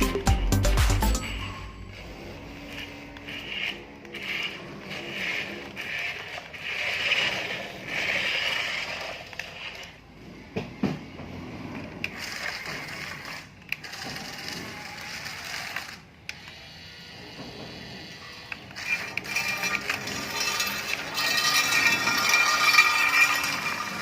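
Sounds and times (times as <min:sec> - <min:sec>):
toy motors and gears whirring: 0:01.0 - 0:24.0
scraping: 0:18.7 - 0:24.0.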